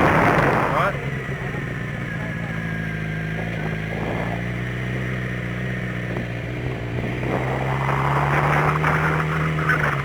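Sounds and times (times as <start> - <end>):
wind rush: 0.0 - 0.9
motorcycle engine running: 0.0 - 10.0.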